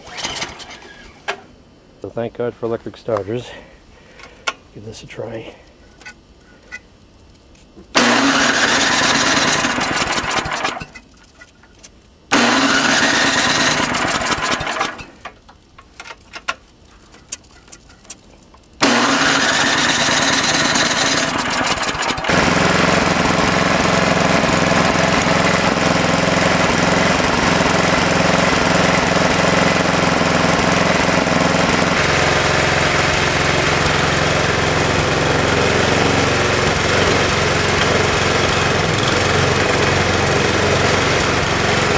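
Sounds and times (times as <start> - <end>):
electric starter cranking: 0.0 - 1.3, 7.9 - 11.0, 12.3 - 15.3, 18.8 - 41.9
snowblower engine running: 8.0 - 10.8, 12.3 - 15.1, 18.8 - 41.9.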